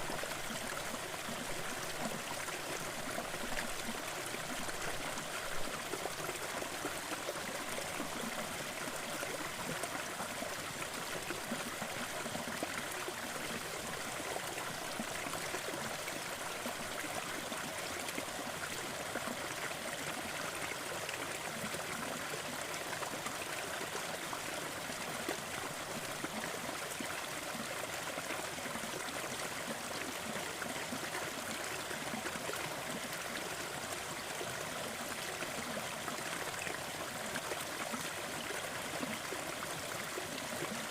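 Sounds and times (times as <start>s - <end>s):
small waterfall splashing: 0.0s - 40.9s.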